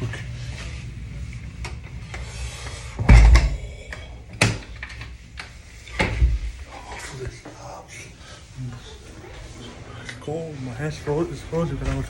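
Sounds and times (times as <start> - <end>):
heavy thumps and knocks: 3.0 - 3.8.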